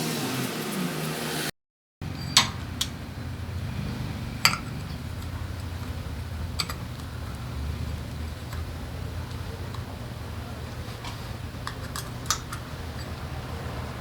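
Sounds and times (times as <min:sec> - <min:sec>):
metal tools clicking: 0:02.0 - 0:03.0, 0:04.0 - 0:13.5
low hum: 0:02.0 - 0:14.0.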